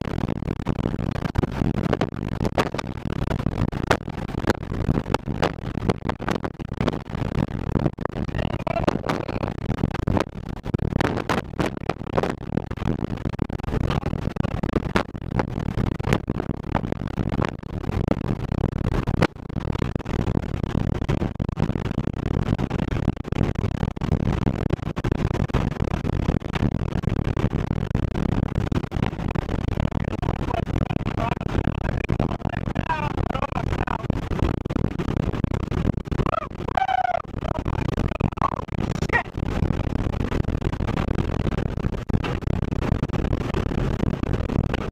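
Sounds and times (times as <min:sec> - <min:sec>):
tornado wind roaring: 0:08.3 - 0:09.7, 0:29.9 - 0:34.5.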